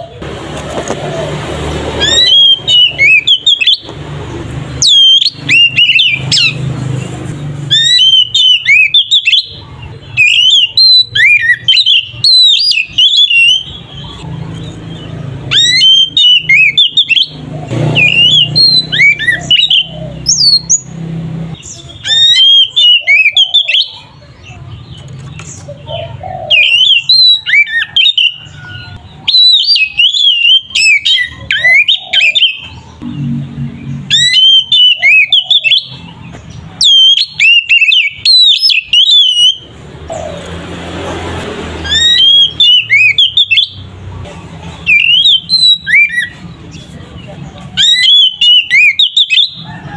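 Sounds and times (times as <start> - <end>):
bird singing whistled phrases: 2.0 - 3.9, 4.8 - 6.6, 7.7 - 14.2, 15.5 - 20.9, 21.6 - 24.1, 26.4 - 32.8, 34.1 - 36.1, 36.8 - 39.7, 41.9 - 43.9, 44.9 - 46.4, 47.8 - 49.6.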